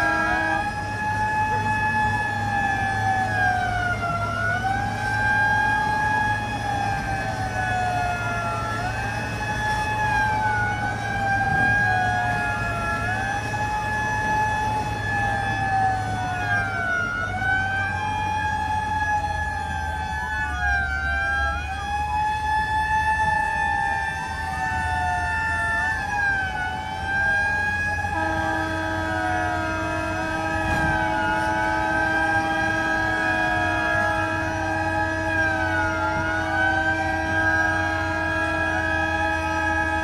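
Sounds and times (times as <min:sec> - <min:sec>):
fire engine sirens wailing: 0:00.0 - 0:40.0
low engine rumble: 0:00.0 - 0:40.0.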